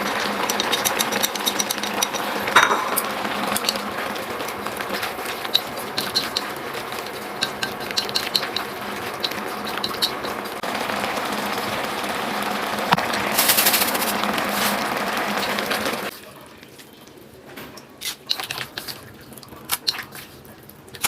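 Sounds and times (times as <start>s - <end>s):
utensils clinking against cookware: 0.0s - 10.6s, 17.8s - 21.0s.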